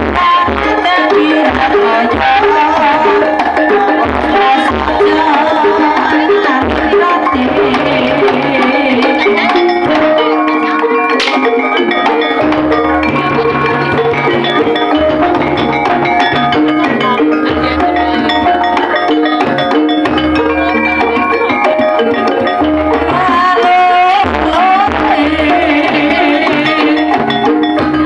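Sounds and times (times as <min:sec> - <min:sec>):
gliding melody line: 0:00.0 - 0:28.0
low drum beats: 0:00.0 - 0:28.0
struck metal keyed instruments: 0:00.0 - 0:28.0.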